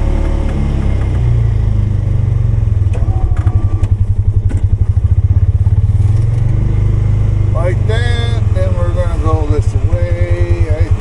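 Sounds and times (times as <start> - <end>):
knocks and clatters: 0.0 - 1.4, 2.9 - 5.0
engine running under load: 0.0 - 11.0.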